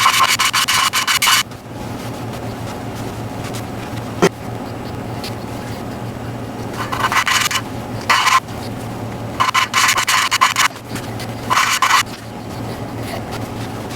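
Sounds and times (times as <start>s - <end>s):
gritty scraping of valve lapping: 4.7s - 13.9s.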